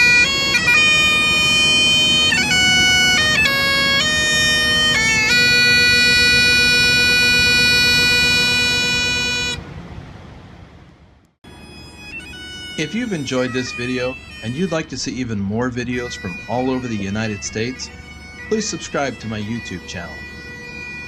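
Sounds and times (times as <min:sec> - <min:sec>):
bagpipes playing: 0:00.0 - 0:09.6, 0:11.4 - 0:21.0.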